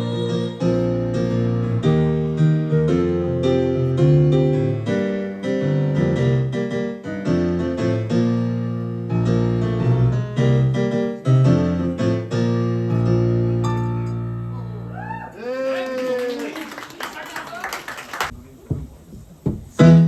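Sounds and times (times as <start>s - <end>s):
piano chords and melody: 0.0s - 15.0s, 19.8s - 20.0s.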